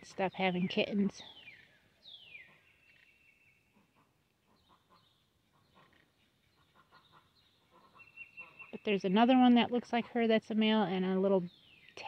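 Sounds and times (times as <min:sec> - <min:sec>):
faint bird calls: 0:00.0 - 0:09.0.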